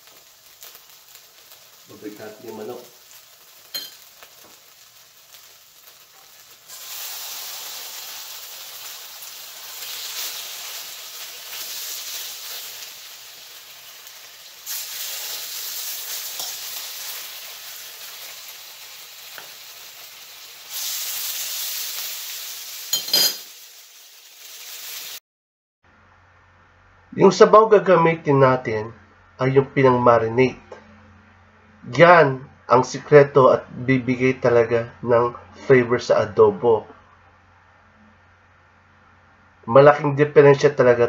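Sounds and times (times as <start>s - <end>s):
chicken sizzling in a wok: 0.0s - 25.2s.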